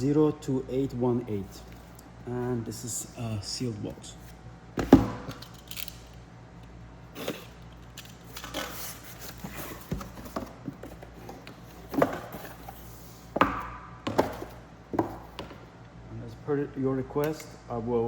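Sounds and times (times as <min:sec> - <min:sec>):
cardboard box knocks and scrapes: 0:09.3 - 0:15.6.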